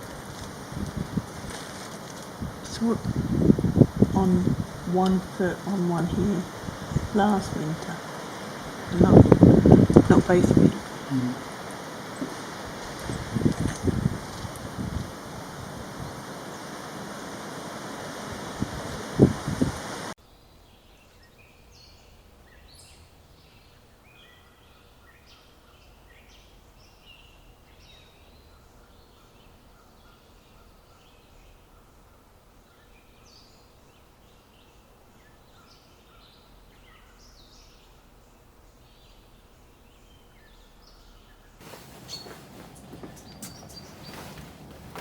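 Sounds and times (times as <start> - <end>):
wind buffeting microphone: 0.0 - 20.1, 41.6 - 45.0
small birds chirping: 2.7 - 14.5, 20.3 - 45.0.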